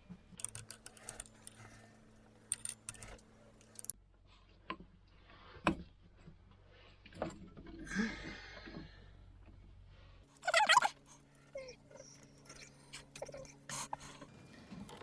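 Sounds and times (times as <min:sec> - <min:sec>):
metal tools clinking: 0:02.5 - 0:03.9.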